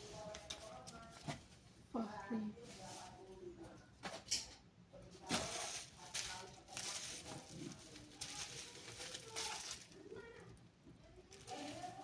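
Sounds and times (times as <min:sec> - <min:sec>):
packaging rustling and crinkling: 0:05.2 - 0:10.2, 0:11.2 - 0:12.0.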